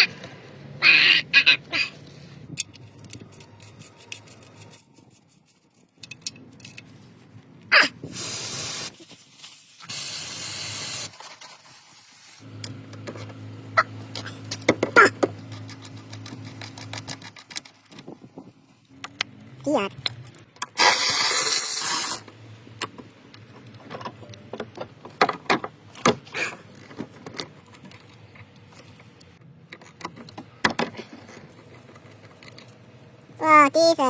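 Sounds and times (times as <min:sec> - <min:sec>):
hissing spray bursts: 0:08.0 - 0:12.4, 0:20.8 - 0:22.3.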